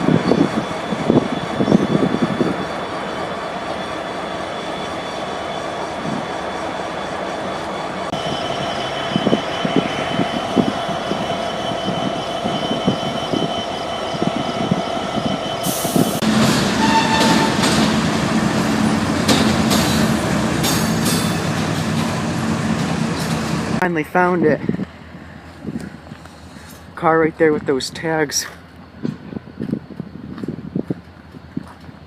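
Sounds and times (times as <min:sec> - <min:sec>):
train rumble with low hum: 0:00.0 - 0:32.0
squealing whine: 0:00.1 - 0:16.2.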